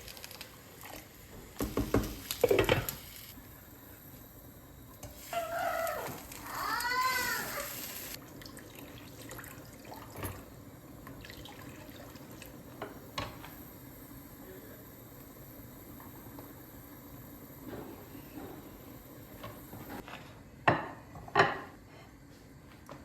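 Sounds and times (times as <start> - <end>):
tap running into sink: 1.6 - 3.0.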